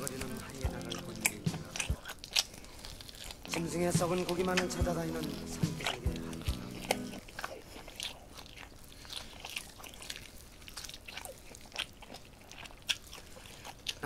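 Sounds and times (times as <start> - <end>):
close chewing and mouth smacks: 0.0 - 14.0.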